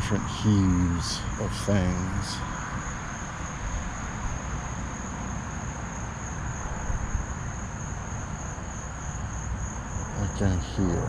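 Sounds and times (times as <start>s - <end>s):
insects trilling: 0.0s - 11.0s
low uneven rumble: 6.6s - 11.0s.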